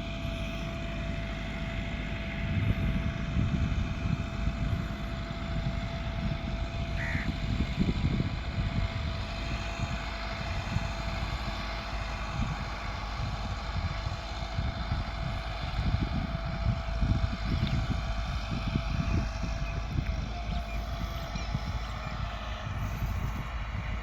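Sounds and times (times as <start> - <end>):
tractor diesel engine under load: 0.0 - 24.0.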